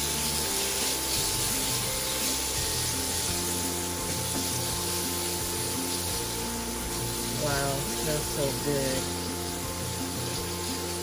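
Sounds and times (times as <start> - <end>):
background music: 0.0 - 11.0
meat sizzling in a pan: 0.0 - 11.0.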